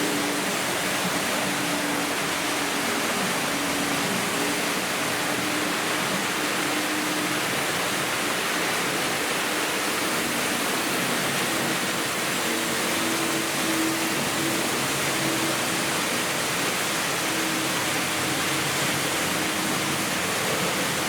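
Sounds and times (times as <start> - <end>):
model train wheels on track: 10.2 - 21.0.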